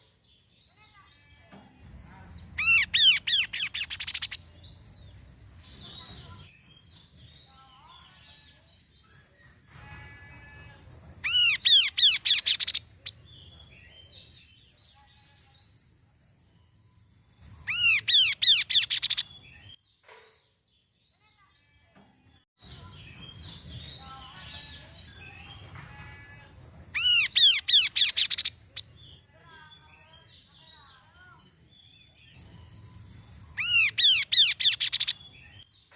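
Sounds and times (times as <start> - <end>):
soft bird twittering: 0.7 - 9.2, 9.8 - 16.1, 16.8 - 19.9, 22.6 - 35.9
bird whistling song: 2.4 - 5.0, 11.2 - 13.6, 17.5 - 19.8, 26.9 - 29.2, 32.0 - 35.9.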